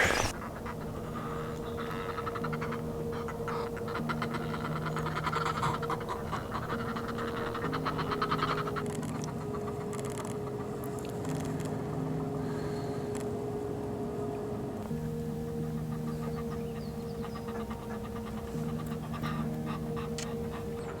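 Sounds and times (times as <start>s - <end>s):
seabirds cackling: 0.0s - 10.8s, 14.9s - 21.0s
held low background notes: 13.3s - 21.0s.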